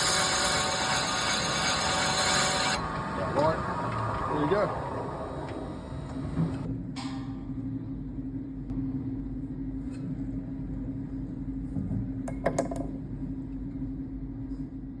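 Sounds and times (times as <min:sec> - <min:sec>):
lathe humming: 0:00.0 - 0:06.7.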